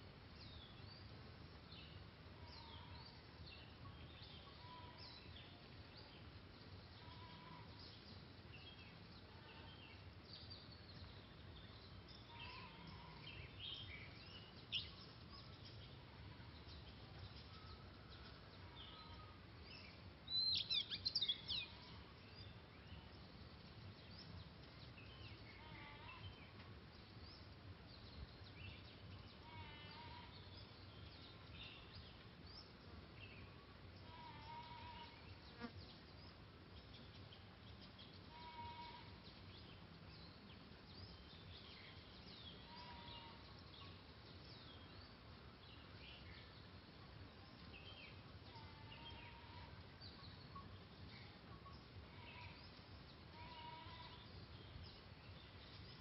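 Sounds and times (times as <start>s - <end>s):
loud sweeping birdsong: 0.0s - 56.0s
birds calling and chirping: 16.6s - 56.0s.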